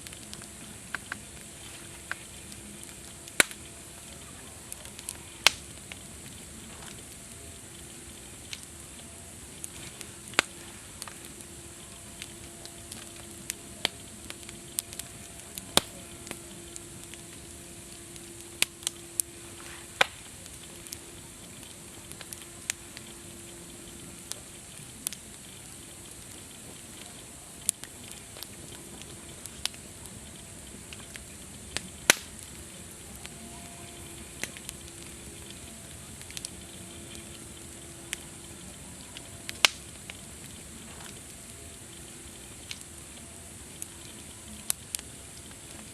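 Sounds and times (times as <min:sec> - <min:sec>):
campfire hissing: 0:00.0 - 0:45.9
wood popping and snapping: 0:32.0 - 0:32.5, 0:39.5 - 0:41.4.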